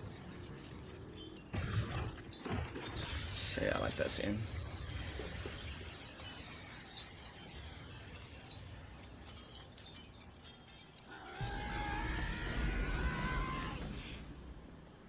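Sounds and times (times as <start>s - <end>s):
faint cracking and shattering: 0.0s - 15.0s
low rumble: 11.4s - 15.0s.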